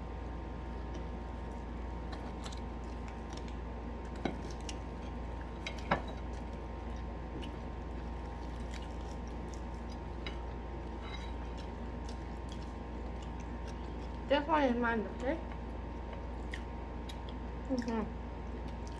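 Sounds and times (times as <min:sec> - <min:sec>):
steady low hum: 0:00.0 - 0:18.9
chewing with small clicks: 0:00.6 - 0:18.9.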